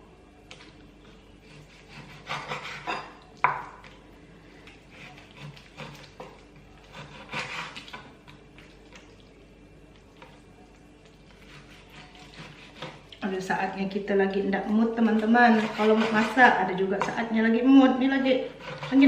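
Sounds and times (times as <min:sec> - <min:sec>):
utensils scraping on a counter: 0:15.4 - 0:16.5.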